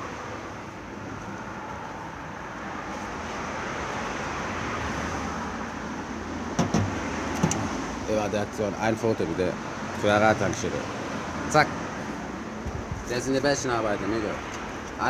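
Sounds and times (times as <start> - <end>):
road traffic rush: 0.0 - 15.0
vehicle passing by: 1.3 - 8.5.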